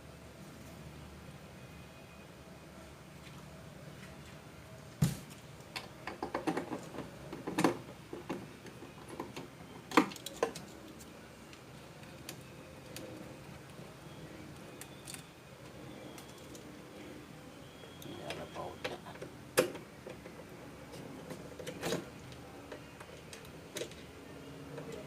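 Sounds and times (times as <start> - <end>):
clicks and knocks of parts handled: 5.3 - 13.0.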